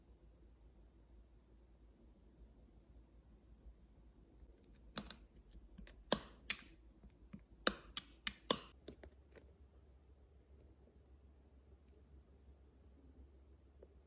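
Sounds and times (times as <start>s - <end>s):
sharp taps: 5.8s - 6.7s, 7.7s - 8.7s.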